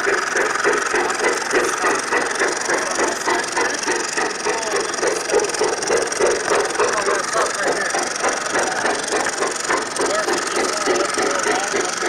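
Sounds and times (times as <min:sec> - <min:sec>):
model train rhythmic beat: 0:00.0 - 0:12.0.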